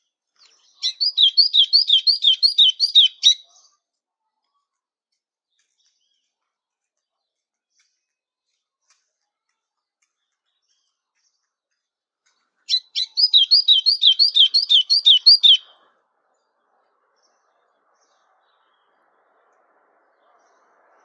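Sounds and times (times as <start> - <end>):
songbird whistling song: 0.4 - 3.6, 12.7 - 15.8.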